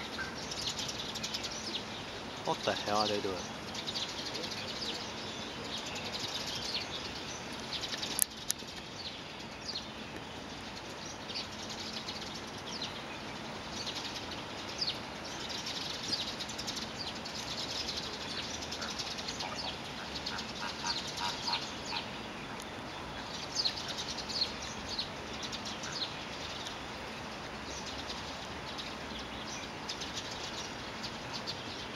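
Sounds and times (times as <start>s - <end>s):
bird chirps and calls: 0.0s - 31.9s
steady background noise: 0.0s - 31.9s.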